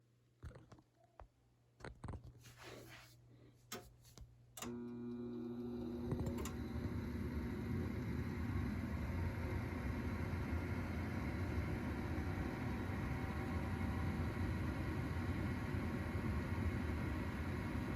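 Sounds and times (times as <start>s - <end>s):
furnace motor hum: 4.6s - 17.9s.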